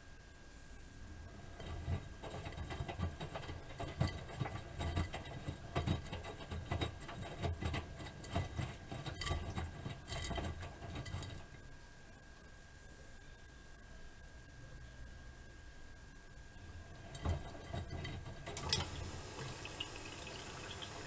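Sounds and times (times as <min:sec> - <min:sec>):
washing machine drum tumbling: 0:01.2 - 0:11.6, 0:16.6 - 0:21.0.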